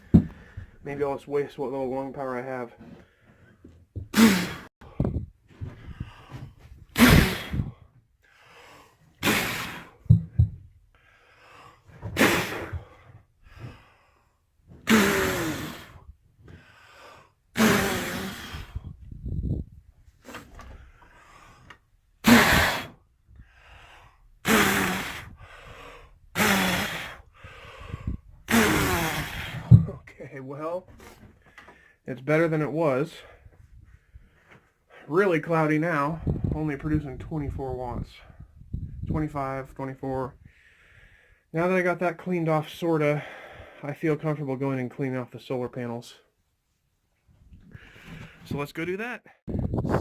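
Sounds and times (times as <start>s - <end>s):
man gasping for air: 0.0s - 0.8s, 2.8s - 10.3s, 10.9s - 19.6s, 20.5s - 30.0s, 40.4s - 41.5s, 47.7s - 48.5s
man blowing forceful puffs: 4.0s - 8.0s, 9.0s - 10.8s, 11.8s - 13.9s, 14.7s - 16.7s, 17.6s - 30.0s.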